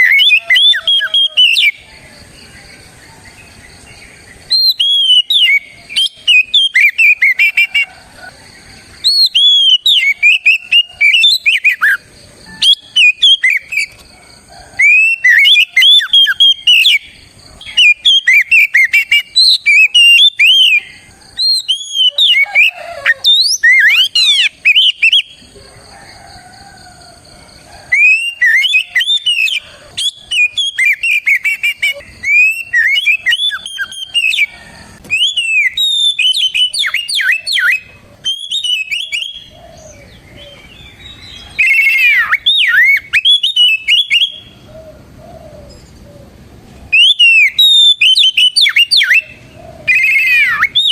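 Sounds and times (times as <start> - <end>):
bird singing whistled phrases: 0.0 - 1.9, 4.5 - 7.9, 9.0 - 14.0, 14.8 - 25.3, 27.9 - 34.5, 35.1 - 44.5, 46.9 - 50.9.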